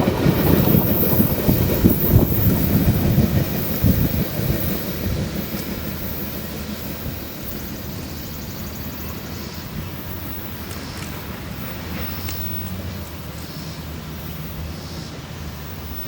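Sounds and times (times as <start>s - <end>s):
train wheels knocking on rail: 0.0s - 12.8s
train rumbling past: 0.0s - 16.0s.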